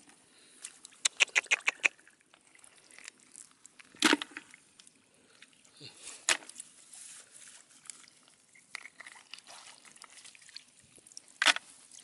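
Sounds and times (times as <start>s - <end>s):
water trickling and dripping: 7.4s - 12.0s.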